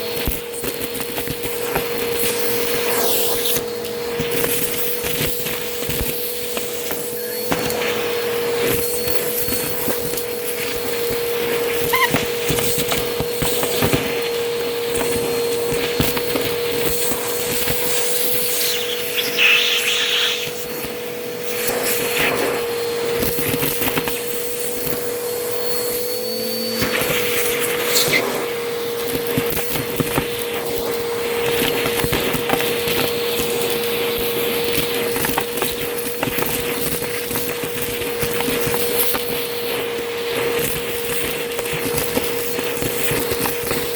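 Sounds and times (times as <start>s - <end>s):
vacuum cleaner motor whine: 0.0s - 43.9s.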